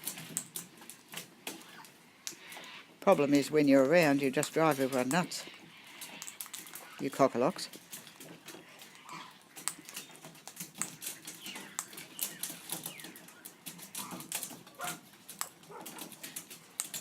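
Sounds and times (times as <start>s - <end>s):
birds pecking seed: 0.0s - 17.0s
faint bird calls: 1.5s - 15.0s.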